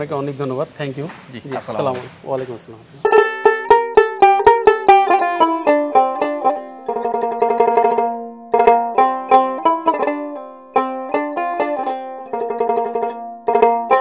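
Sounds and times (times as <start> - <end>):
plucked banjo-like tune: 3.0 - 14.0.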